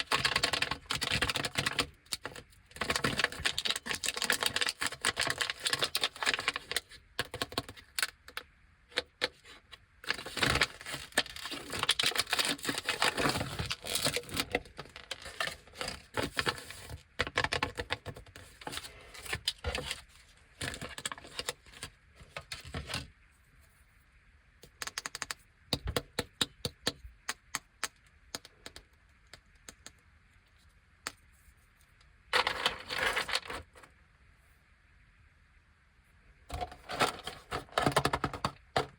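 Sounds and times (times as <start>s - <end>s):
plastic wrappers crinkling: 0.0s - 8.0s, 10.0s - 23.1s, 32.4s - 33.8s.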